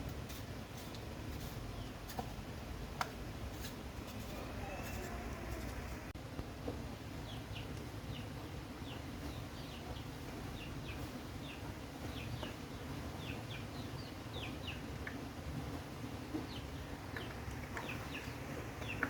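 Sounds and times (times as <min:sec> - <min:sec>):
birds chirping: 0:04.0 - 0:06.2, 0:07.1 - 0:19.0.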